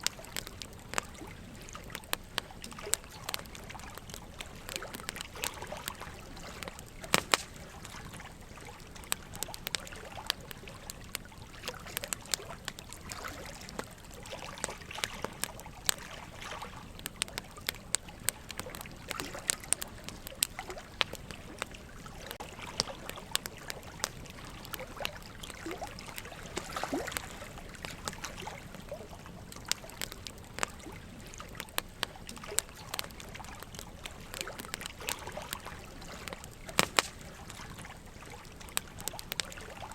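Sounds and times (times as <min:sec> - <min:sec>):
running water trickling: 0:00.0 - 0:39.9
wood fire crackling and popping: 0:00.0 - 0:39.9.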